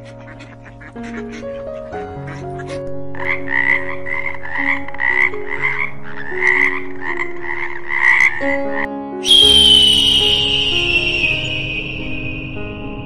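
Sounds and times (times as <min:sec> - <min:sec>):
toad croaking: 0:02.6 - 0:08.9
high tone falling in pitch: 0:09.2 - 0:13.0.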